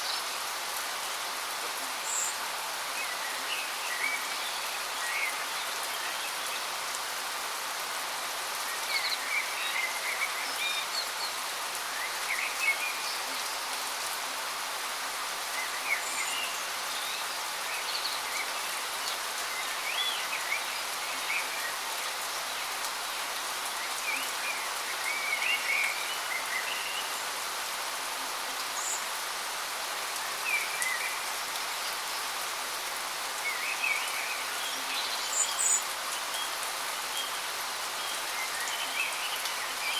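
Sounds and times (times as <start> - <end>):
small birds chirping: 28.6 - 39.9.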